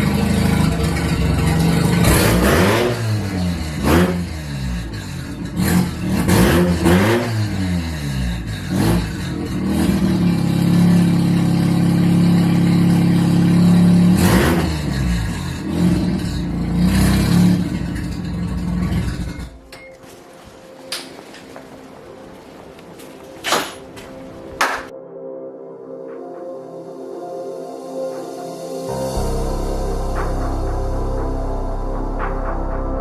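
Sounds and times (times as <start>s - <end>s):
rotary engine revving: 0.0s - 19.6s.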